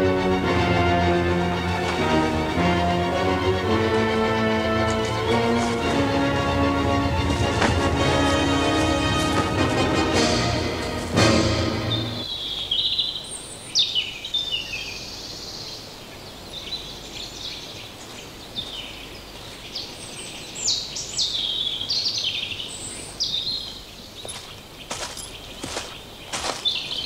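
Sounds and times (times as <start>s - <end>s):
music: 0.0s - 12.3s
songbirds singing: 10.7s - 27.0s.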